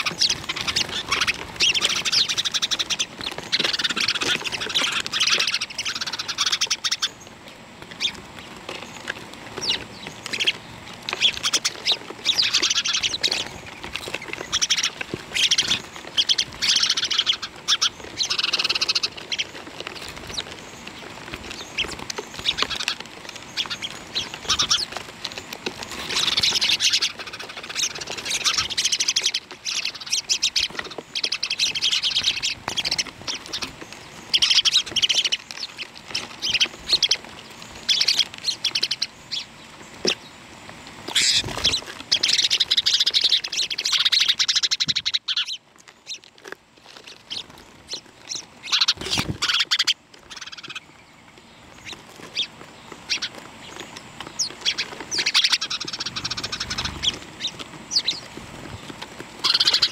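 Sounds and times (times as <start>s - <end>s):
many birds chirping: 0.0s - 59.9s.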